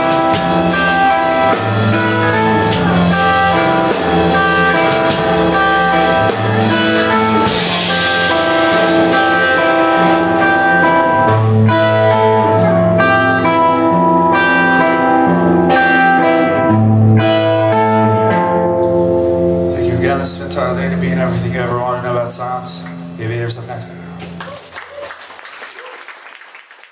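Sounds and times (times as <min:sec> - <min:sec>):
cymbals: 0:00.0 - 0:12.1
guitar chords ringing: 0:00.0 - 0:24.4
low bass notes: 0:00.0 - 0:24.4
live band instrumental: 0:00.0 - 0:25.8.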